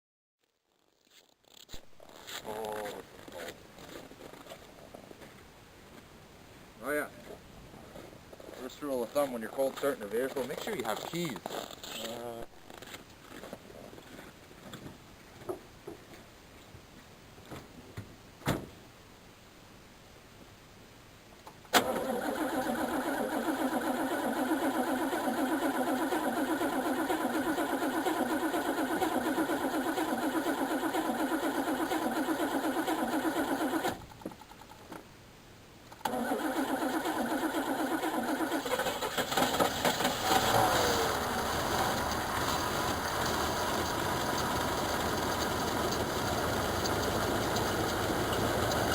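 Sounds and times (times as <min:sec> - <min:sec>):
car engine cranking on starter: 0:21.8 - 0:34.0, 0:36.0 - 0:48.9.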